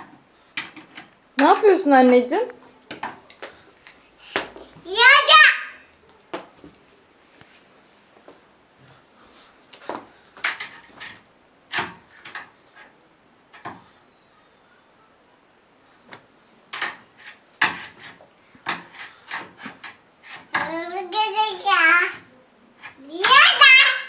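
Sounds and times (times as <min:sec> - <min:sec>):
hand tool scraping wooden door: 0:17.2 - 0:20.9.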